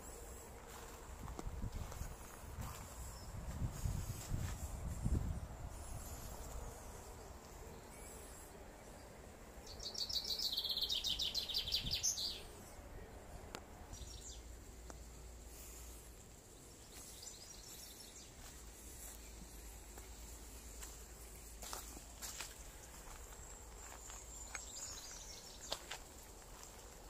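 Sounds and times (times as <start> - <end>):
songbird trilling: 9.6 - 12.5.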